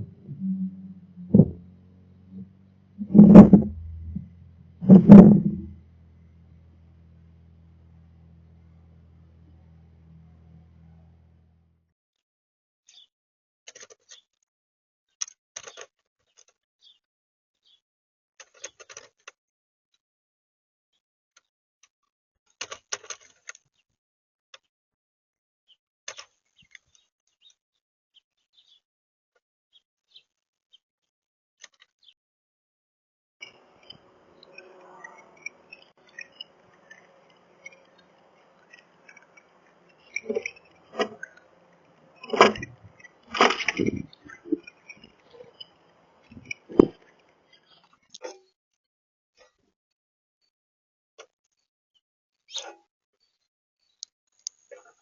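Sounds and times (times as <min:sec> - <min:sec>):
birds pecking and scratching on feeder: 0:33.4 - 0:47.9.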